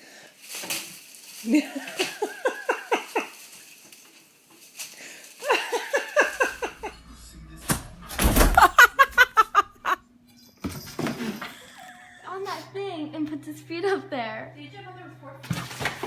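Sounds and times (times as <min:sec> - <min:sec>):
person laughing: 0:01.6 - 0:03.3, 0:05.4 - 0:10.0, 0:11.1 - 0:13.1
loud thump: 0:06.8 - 0:09.3.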